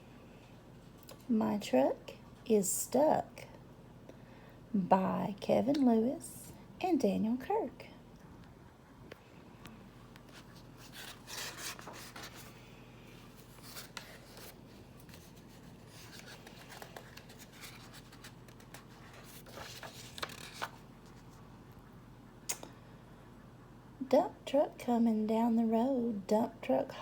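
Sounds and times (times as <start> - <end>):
book pages rustling: 10.1 - 21.4.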